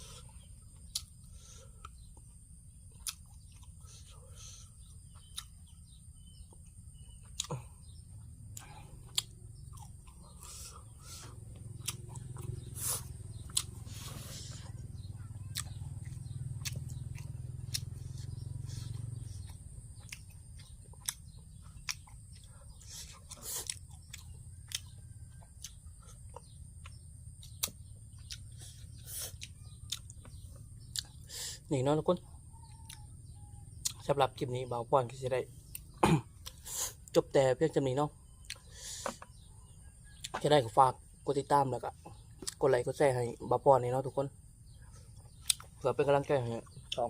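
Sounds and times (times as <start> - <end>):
person chewing food: 0.0 - 31.6, 35.6 - 37.2, 38.3 - 40.4, 44.6 - 45.8.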